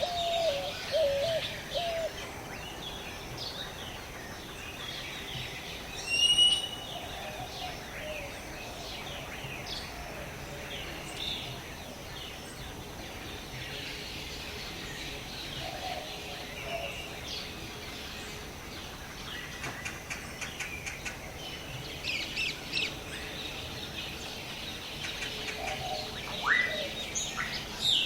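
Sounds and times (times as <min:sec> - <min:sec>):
dove cooing faintly: 0:00.0 - 0:02.3
small birds chirping and twittering: 0:00.0 - 0:28.0.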